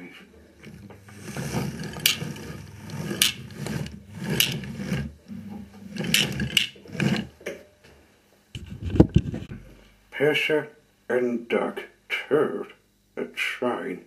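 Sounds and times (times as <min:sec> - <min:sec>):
toy trains rolling on track: 0:00.6 - 0:05.2, 0:05.9 - 0:07.3.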